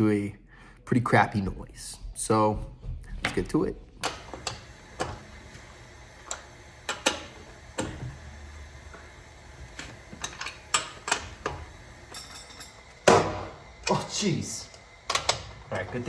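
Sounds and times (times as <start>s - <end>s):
sharp clicks and knocks: 4.0s - 5.6s, 6.2s - 8.2s, 9.0s - 13.5s, 14.7s - 15.6s.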